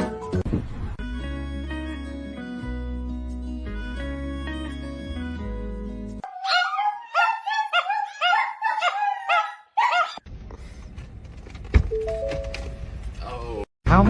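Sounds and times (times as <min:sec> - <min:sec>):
small dog yipping: 0:06.2 - 0:10.2.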